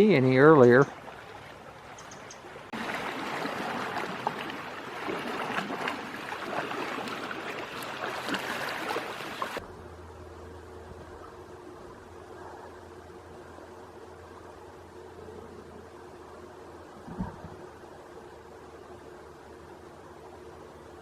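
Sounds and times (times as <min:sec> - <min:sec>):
water washing and trickling: 0:00.0 - 0:09.6
low steady hum: 0:00.0 - 0:21.0.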